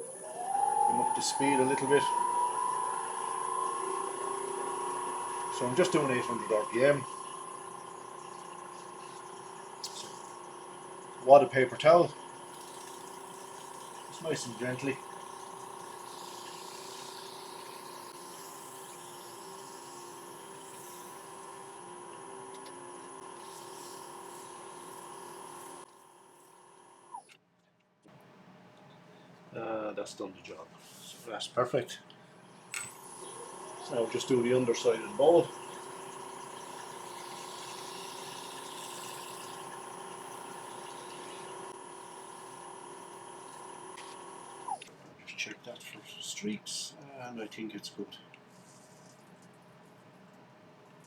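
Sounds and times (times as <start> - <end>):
wood lathe motor whine: 0.0 - 27.3, 32.6 - 44.9.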